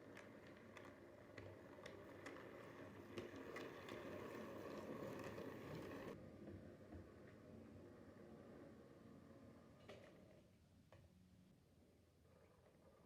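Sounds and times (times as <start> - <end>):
model train motor hum: 0.0 - 6.2
wheels clicking over rail joints: 0.0 - 6.2.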